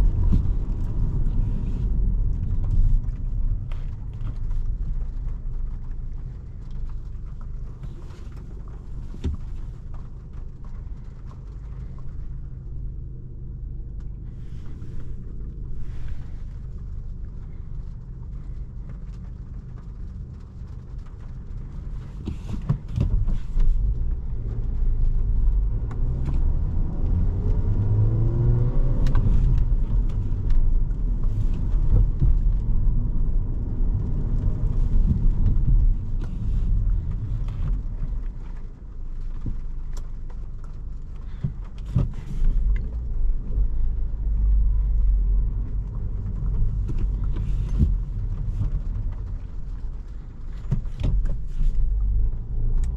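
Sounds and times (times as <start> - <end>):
car engine and road noise: 0.0 - 52.9.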